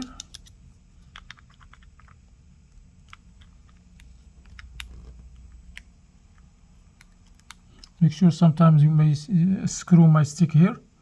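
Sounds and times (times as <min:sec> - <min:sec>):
small tools clicking on phone frame: 0:00.0 - 0:02.2.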